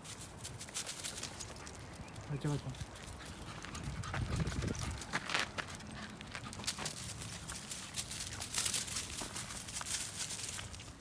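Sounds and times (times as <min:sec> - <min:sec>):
footsteps on hard ground: 0:03.6 - 0:10.9.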